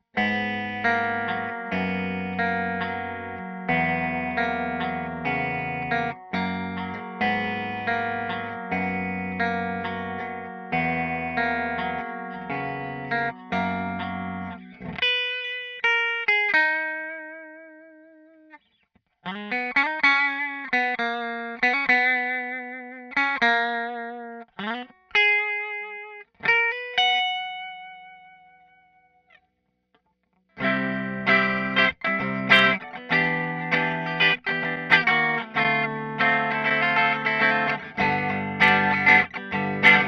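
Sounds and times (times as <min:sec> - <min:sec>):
distorted electric guitar chords: 0:00.0 - 0:17.7, 0:30.6 - 0:40.0
electric guitar lead notes: 0:00.0 - 0:18.6, 0:19.3 - 0:29.2, 0:30.6 - 0:40.0.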